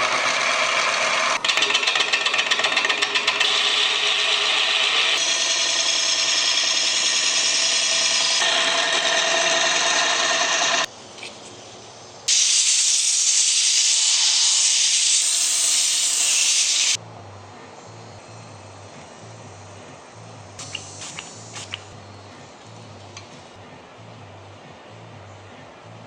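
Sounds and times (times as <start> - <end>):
power tool whining: 0.0 - 10.9, 12.3 - 17.0
loud high hissing noise: 3.5 - 17.0, 17.8 - 23.2.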